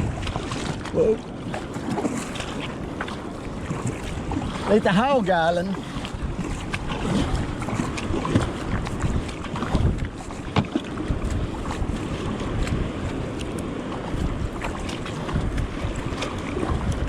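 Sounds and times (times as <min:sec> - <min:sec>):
short splashes: 0:00.0 - 0:17.0
water rushing along kayak hull: 0:00.0 - 0:17.0
wind buffeting microphone: 0:00.0 - 0:17.0.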